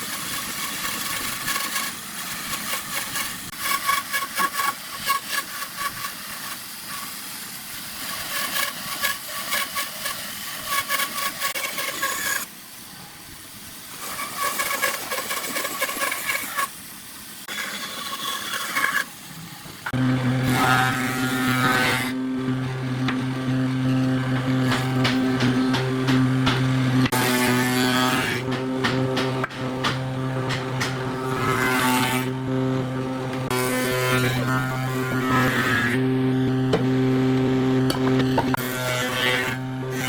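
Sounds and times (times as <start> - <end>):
power tool running in surges: 19.8 - 40.0.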